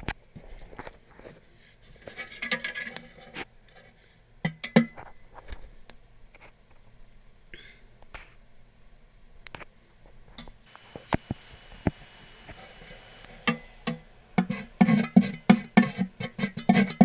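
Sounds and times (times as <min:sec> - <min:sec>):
metal spoon tapping metal kettle: 0:04.4 - 0:05.0, 0:12.6 - 0:17.0.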